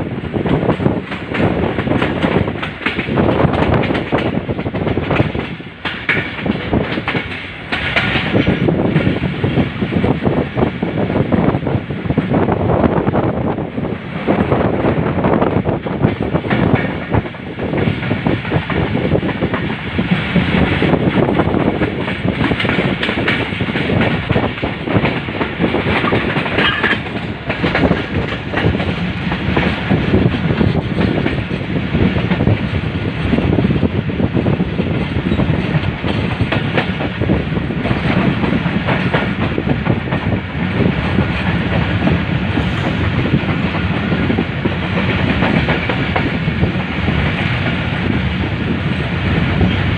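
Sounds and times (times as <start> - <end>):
train rumbling at speed: 0.0 - 49.9
wheels clacking over rail joints: 0.4 - 9.3, 15.7 - 33.3.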